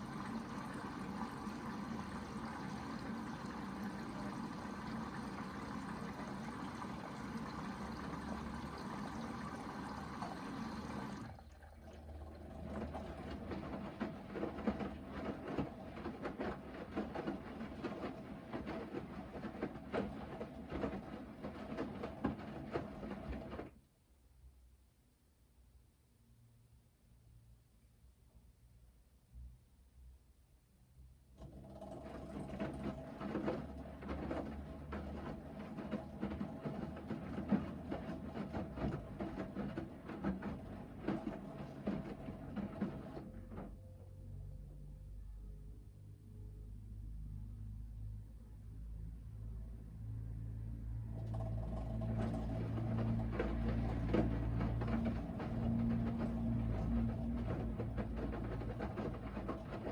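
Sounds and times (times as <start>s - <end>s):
water running into washing machine: 0.0s - 23.7s, 31.4s - 43.8s, 51.1s - 59.9s
laundry sloshing in drum: 0.0s - 23.8s, 31.4s - 43.8s, 51.0s - 59.9s
laundry thudding in drum: 32.0s - 43.7s, 52.1s - 59.9s.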